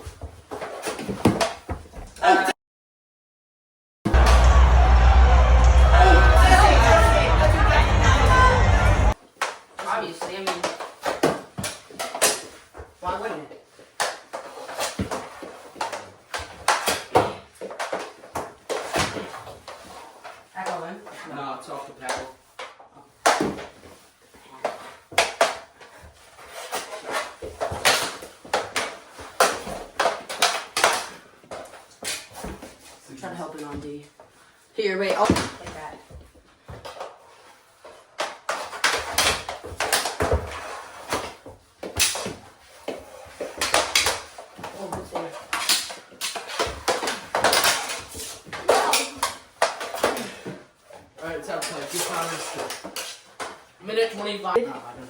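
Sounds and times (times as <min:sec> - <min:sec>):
scuffling: 0:04.1 - 0:09.2
hockey sticks and ball clacking: 0:04.1 - 0:13.2, 0:13.9 - 0:20.9, 0:24.6 - 0:33.0, 0:35.0 - 0:50.6, 0:51.4 - 0:53.7.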